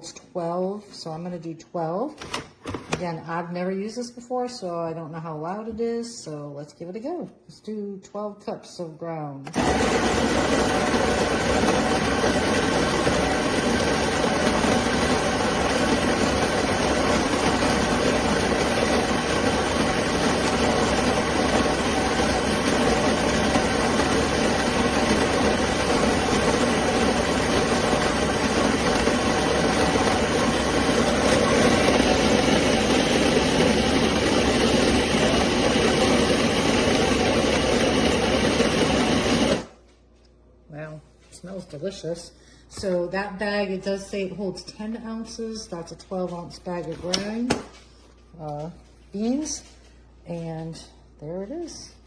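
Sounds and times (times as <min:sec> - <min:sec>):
electric coffee grinder grinding: 0:09.5 - 0:39.8.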